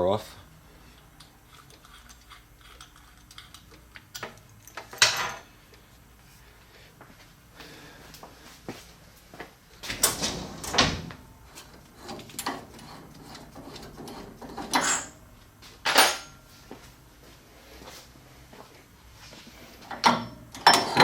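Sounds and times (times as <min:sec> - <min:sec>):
metal parts knocking and scraping: 0:11.6 - 0:15.2, 0:19.9 - 0:21.0.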